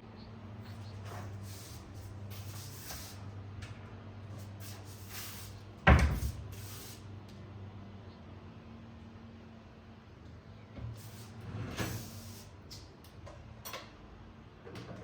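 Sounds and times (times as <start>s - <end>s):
steady low hum: 0.0s - 14.6s
door shutting thump: 5.8s - 6.4s.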